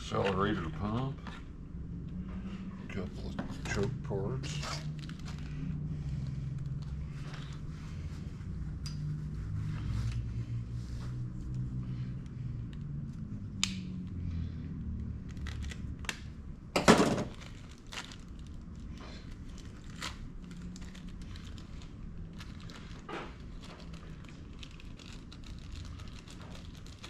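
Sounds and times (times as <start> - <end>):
plastic crinkling: 17.2 - 27.0.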